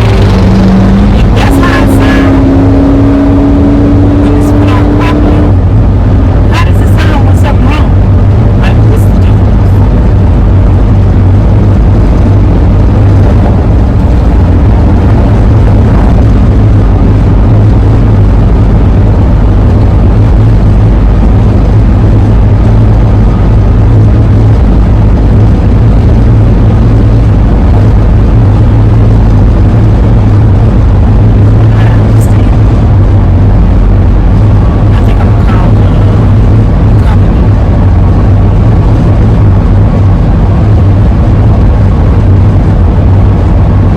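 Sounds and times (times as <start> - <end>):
low drone inside van cabin: 0.0 - 43.9
road and wind noise: 0.0 - 43.9.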